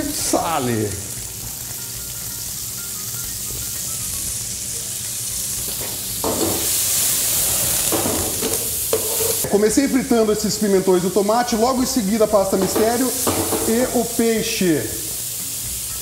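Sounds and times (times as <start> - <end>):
food sizzling in frying pan: 0.0 - 16.0
flames flaring: 4.5 - 9.5.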